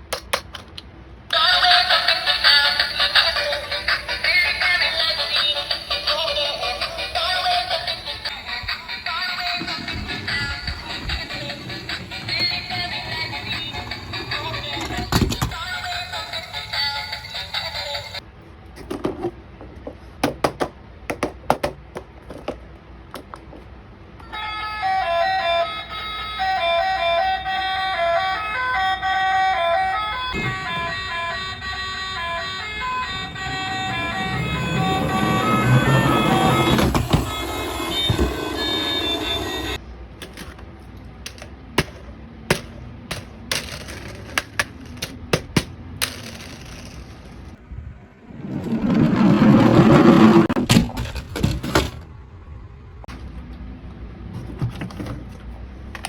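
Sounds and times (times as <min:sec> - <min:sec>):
plastic toys clicking: 0:00.0 - 0:00.9, 0:41.2 - 0:47.4.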